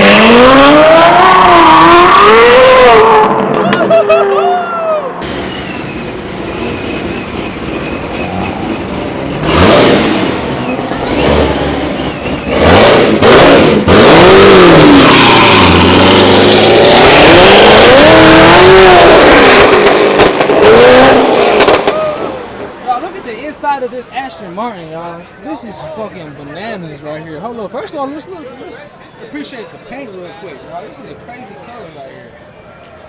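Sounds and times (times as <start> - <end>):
car engine revving: 0.0 - 3.8, 5.2 - 22.8.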